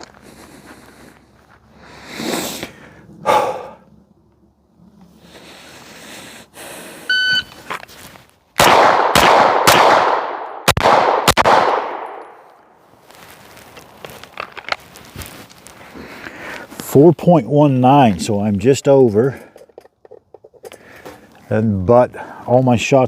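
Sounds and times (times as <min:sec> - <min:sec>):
shot timer beep: 0:07.1 - 0:07.5
pistol shots: 0:08.6 - 0:12.4.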